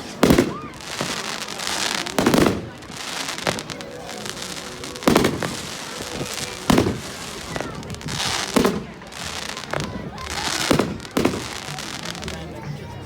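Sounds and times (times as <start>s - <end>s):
fireworks bangs: 0.0s - 12.5s
fireworks crackling and hiss: 0.0s - 13.0s.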